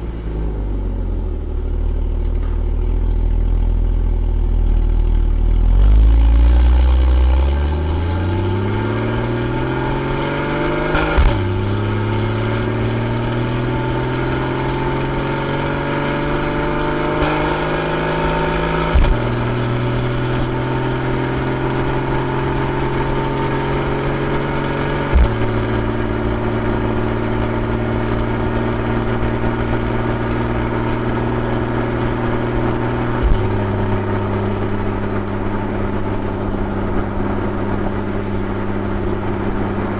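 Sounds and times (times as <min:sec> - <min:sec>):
car engine revving: 0:00.0 - 0:39.9
gear shift crack: 0:10.8 - 0:12.9.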